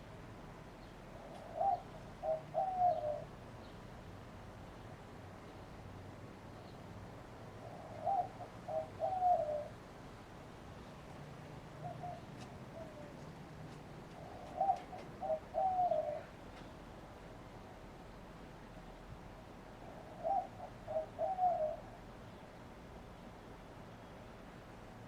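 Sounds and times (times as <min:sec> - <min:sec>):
dove cooing: 0:01.1 - 0:03.4, 0:07.6 - 0:09.8, 0:11.7 - 0:16.6, 0:19.8 - 0:22.1.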